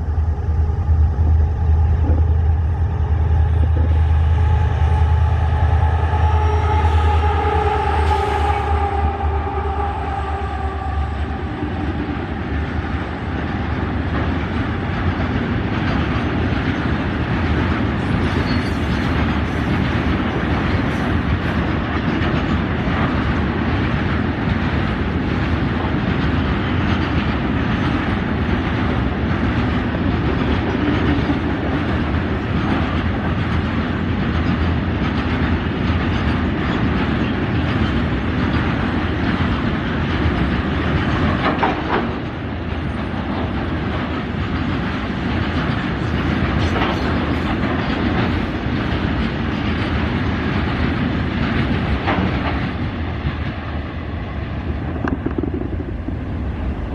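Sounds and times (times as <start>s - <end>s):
clickety-clack over rail joints: 0.0s - 5.0s, 10.6s - 56.9s
train wheels rumbling on rails: 0.0s - 56.9s
train horn: 1.9s - 12.9s.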